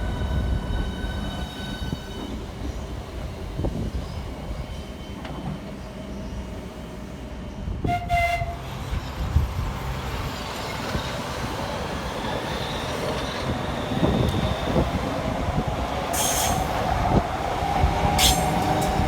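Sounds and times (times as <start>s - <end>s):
train rumble: 0.0s - 19.0s
train horn toot: 7.8s - 8.7s
high wheel squeal: 16.1s - 16.8s, 18.2s - 19.0s.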